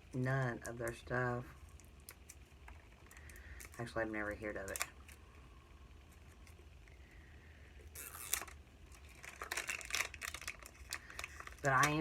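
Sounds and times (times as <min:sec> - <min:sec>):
packaging rustling and crinkling: 0:07.9 - 0:12.0.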